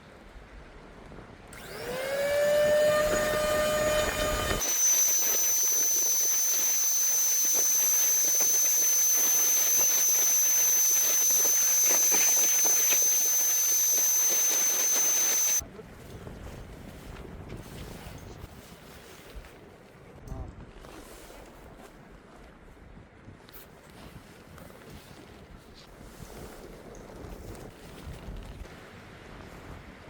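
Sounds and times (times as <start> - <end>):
high-pitched whistle: 1.6 - 15.6.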